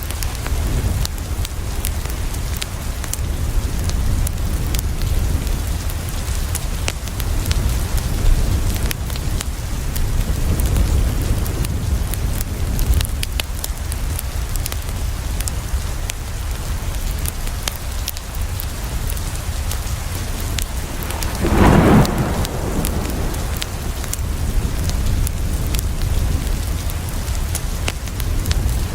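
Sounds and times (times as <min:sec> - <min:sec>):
steady rain: 0:00.0 - 0:28.9
thunder clap: 0:20.3 - 0:26.9
low rumble: 0:20.4 - 0:25.8.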